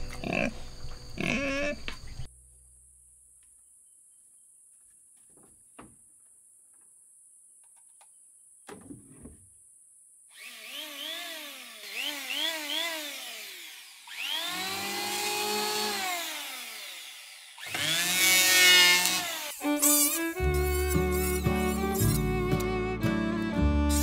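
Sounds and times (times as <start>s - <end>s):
power tool motor whining: 10.3s - 22.7s
music: 19.6s - 24.0s.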